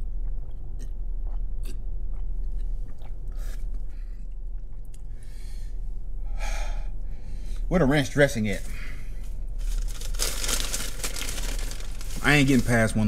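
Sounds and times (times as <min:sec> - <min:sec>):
wet mouth clicks: 0:00.0 - 0:05.1
man chewing: 0:00.0 - 0:05.5
breathy bursts: 0:05.2 - 0:07.7.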